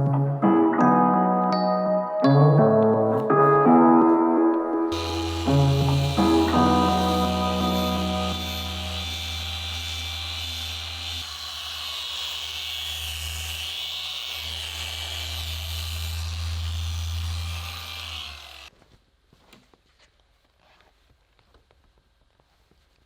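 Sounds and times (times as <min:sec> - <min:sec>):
power tool motor running: 0:04.9 - 0:18.7.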